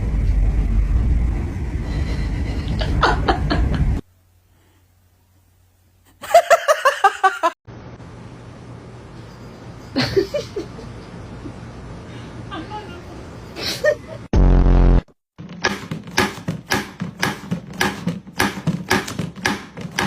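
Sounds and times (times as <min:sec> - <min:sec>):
low steady hum: 0:00.0 - 0:06.2
person laughing: 0:02.2 - 0:04.0, 0:06.2 - 0:07.6, 0:09.9 - 0:11.6
loud noise: 0:14.4 - 0:15.2.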